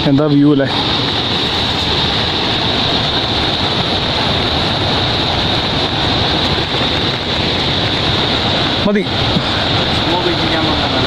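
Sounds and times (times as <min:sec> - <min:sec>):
loud rushing noise: 0:00.0 - 0:11.0.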